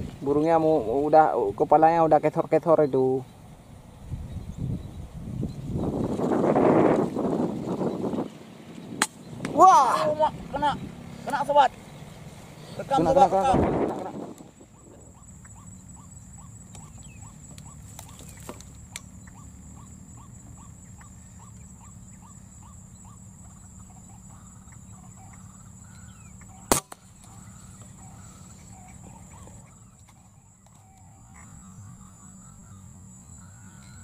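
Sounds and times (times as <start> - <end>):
wind rumbling on microphone: 3.2 - 11.2, 12.2 - 19.0
sharp crack: 9.0 - 9.6, 26.6 - 27.4
faint regular chirping: 14.1 - 34.0.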